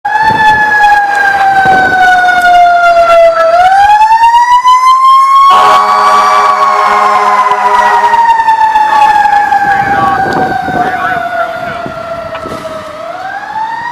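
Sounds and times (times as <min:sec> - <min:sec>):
fire truck mechanical siren: 0:00.0 - 0:13.9
air horn: 0:05.5 - 0:08.2.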